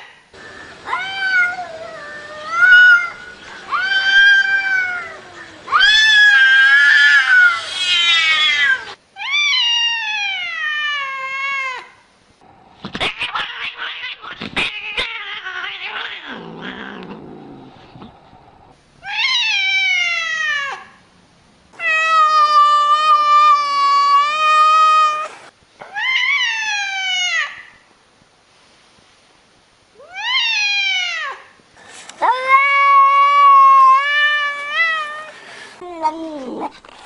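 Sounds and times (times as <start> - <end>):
cats meowing and yowling: 0.9 - 11.9, 13.0 - 17.3, 19.0 - 20.9, 21.8 - 27.7, 30.0 - 31.5, 32.2 - 36.7.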